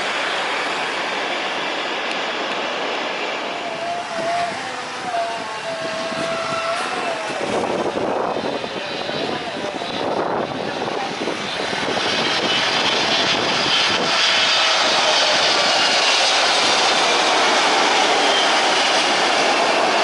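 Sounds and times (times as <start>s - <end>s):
jet airliner engines roaring: 0.0s - 20.0s
thin high whine: 3.4s - 9.6s.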